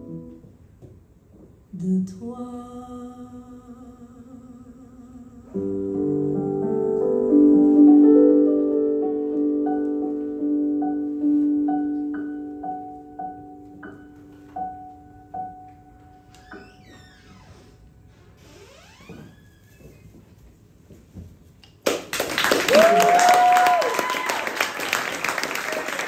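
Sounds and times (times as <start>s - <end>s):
piano playing: 0.0s - 0.6s, 5.6s - 16.4s.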